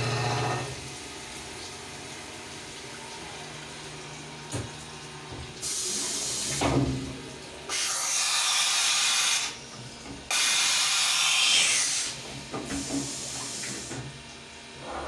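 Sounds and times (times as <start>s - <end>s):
compressed air hissing: 10.3s - 12.2s.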